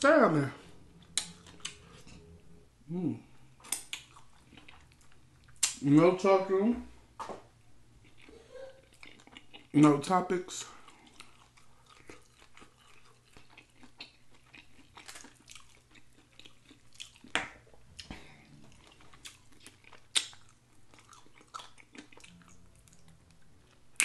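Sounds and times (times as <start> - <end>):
person chewing with wet smacks: 1.0 - 1.8, 3.6 - 5.8, 8.0 - 9.8, 10.8 - 24.0.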